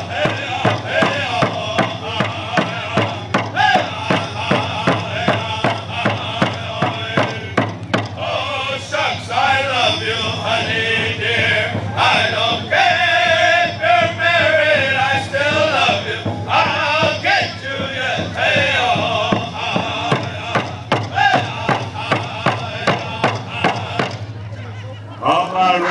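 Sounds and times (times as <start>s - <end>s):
group singing in unison: 0.0s - 24.4s
steady drumbeat: 0.0s - 24.5s.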